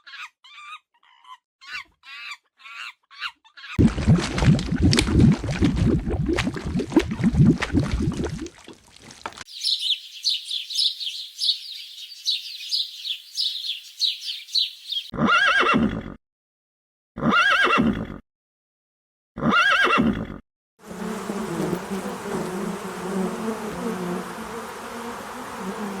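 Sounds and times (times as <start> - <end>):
rapid high chirps: 9.5 - 15.1.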